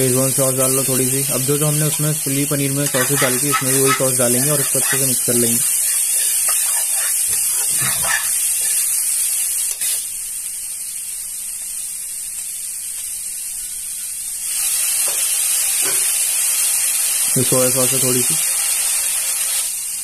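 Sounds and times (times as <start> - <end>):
vegetables sizzling in hot oil: 0.0 - 20.0
metal ladle scraping pan: 2.8 - 8.9.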